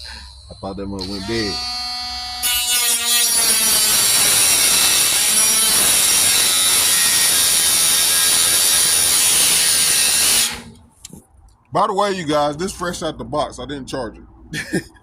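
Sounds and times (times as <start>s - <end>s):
angle grinder cutting metal: 0.0s - 10.8s.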